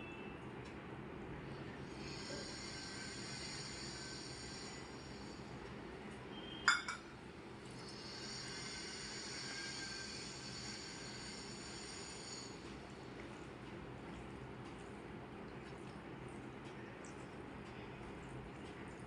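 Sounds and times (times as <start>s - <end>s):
dishware clink: 6.7s - 7.1s.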